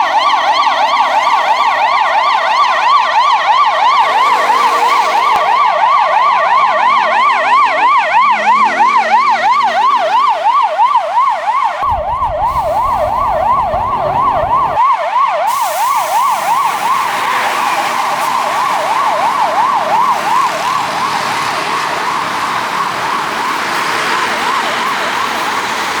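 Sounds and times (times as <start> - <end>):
ambulance siren yelping: 0.0 - 26.0
street traffic: 0.0 - 26.0
low rumble: 11.8 - 14.8.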